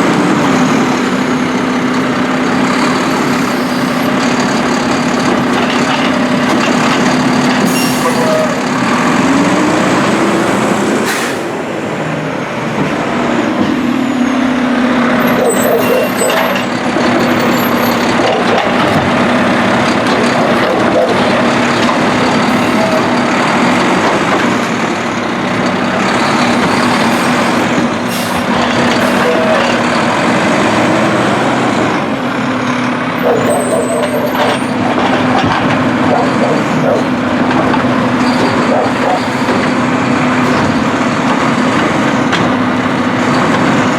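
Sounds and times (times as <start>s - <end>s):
truck diesel engine droning: 0.0s - 43.9s.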